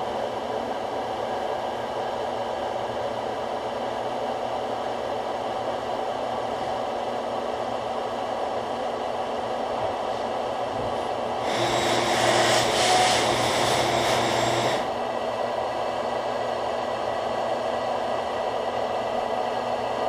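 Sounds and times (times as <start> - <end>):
bandsaw cutting metal: 11.4 - 14.9.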